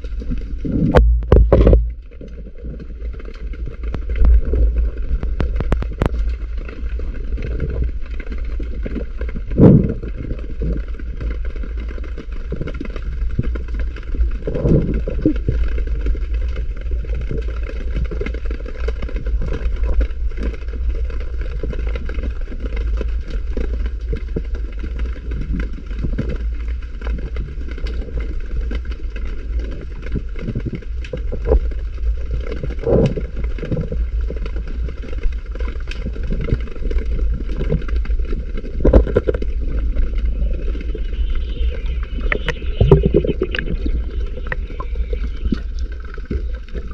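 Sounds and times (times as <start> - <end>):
fine crackling clicks: 0.0 - 46.9
low underwater rumble: 0.0 - 46.9.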